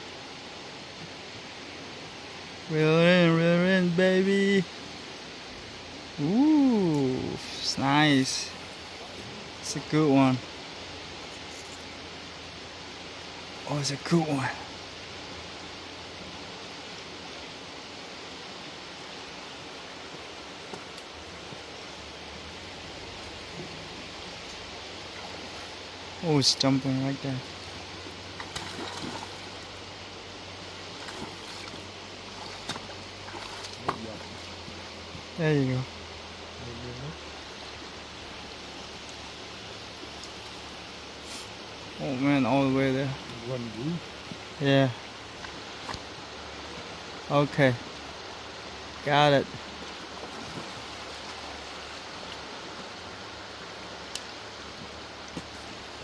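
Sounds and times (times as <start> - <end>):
flowing creek water: 0.0 - 56.0
faint clicks: 54.1 - 54.3.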